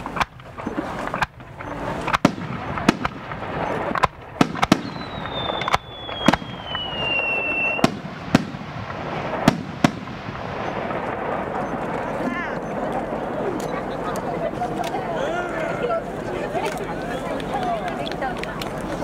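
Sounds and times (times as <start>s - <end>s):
firework bangs: 0.0s - 15.2s
crackling and rumbling echoes: 0.0s - 19.0s
whistle falling in pitch: 4.8s - 7.8s.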